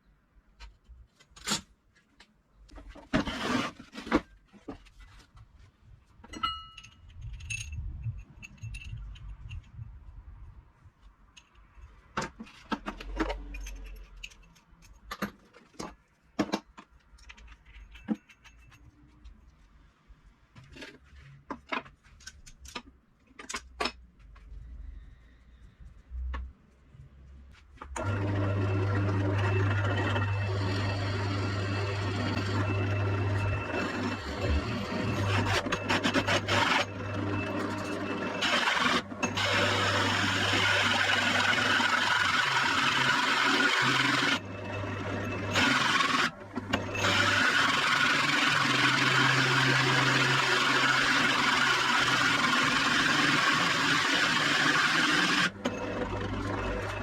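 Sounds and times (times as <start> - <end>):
hand tools and metal parts clinking: 6.1 - 9.8, 11.3 - 19.4
power tool humming: 28.0 - 57.0.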